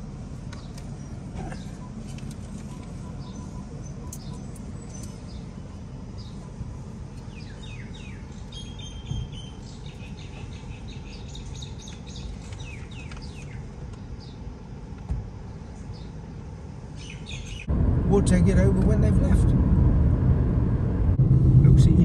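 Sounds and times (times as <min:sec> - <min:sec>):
steady low rumble: 0:00.0 - 0:22.0
small birds chirping: 0:00.3 - 0:17.7.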